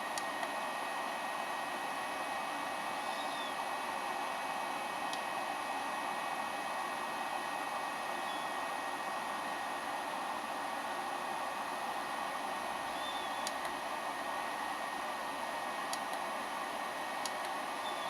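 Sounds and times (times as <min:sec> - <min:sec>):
click: 0:13.4 - 0:13.7, 0:15.9 - 0:16.2, 0:17.2 - 0:17.6.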